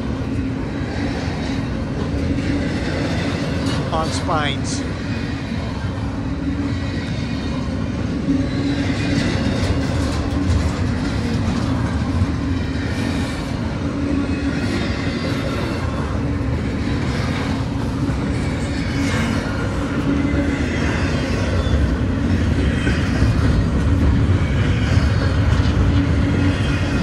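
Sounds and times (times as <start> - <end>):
freight train rumble: 0.0 - 27.0
train wheels clacking: 8.5 - 27.0.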